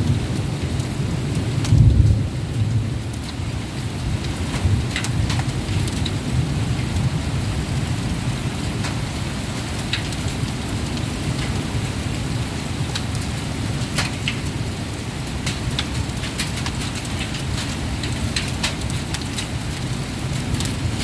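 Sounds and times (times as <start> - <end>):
low thunder rumble: 0.0 - 8.5
heavy rain pouring: 0.0 - 21.0.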